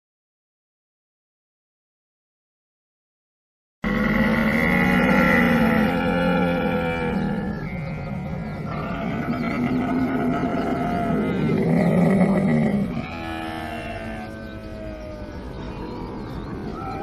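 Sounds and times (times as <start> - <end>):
camel calling: 3.9 - 17.0.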